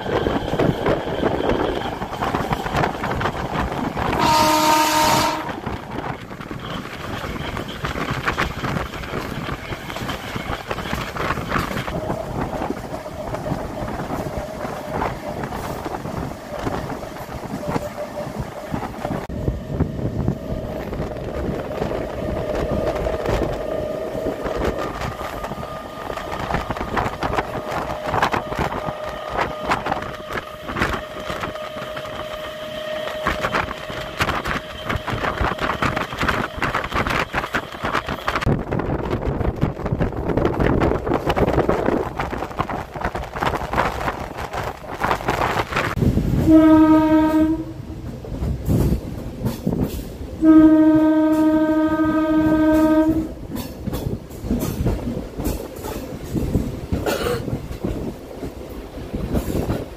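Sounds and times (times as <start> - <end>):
train rumble and wheel clatter: 0.0 - 59.9
wind: 0.0 - 59.9
train horn blast: 4.1 - 5.8, 46.4 - 47.9, 50.4 - 53.4.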